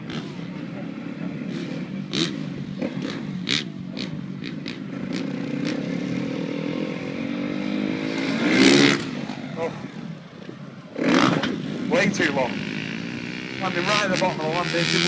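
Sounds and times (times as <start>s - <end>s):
motocross bike engine revving: 0.0s - 10.2s, 10.9s - 15.0s.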